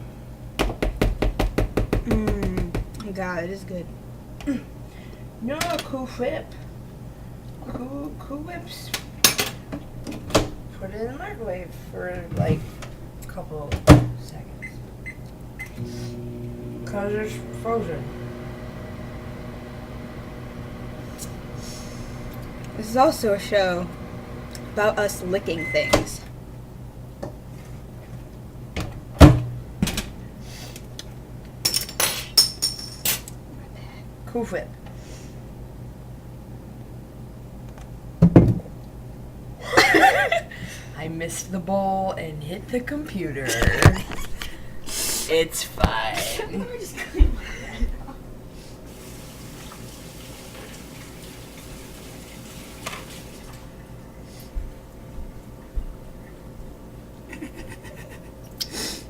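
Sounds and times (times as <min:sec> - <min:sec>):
water running: 0:15.8 - 0:26.3, 0:48.9 - 0:54.0.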